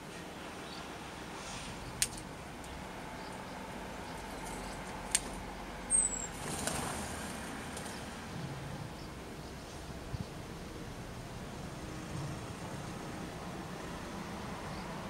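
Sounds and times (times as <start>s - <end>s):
distant traffic hum: 0.0s - 15.0s
high falling bird chirp: 5.9s - 6.4s.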